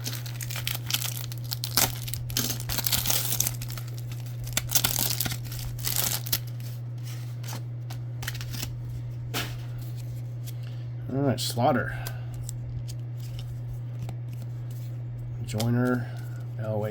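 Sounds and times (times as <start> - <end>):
wrapper crinkling and tearing: 0.0 - 6.8
low electrical hum: 0.0 - 16.9.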